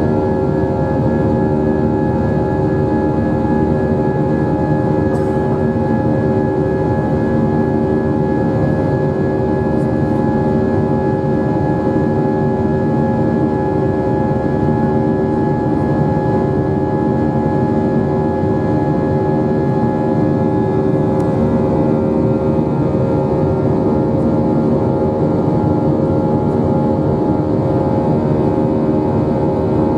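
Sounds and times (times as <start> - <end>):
jet engines humming in cabin: 0.0 - 29.9.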